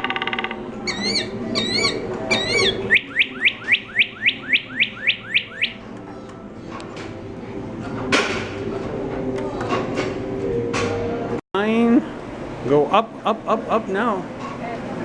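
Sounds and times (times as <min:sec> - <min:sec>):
bird warbling chirps: 0:00.1 - 0:05.8
bird whistled notes: 0:00.8 - 0:05.8.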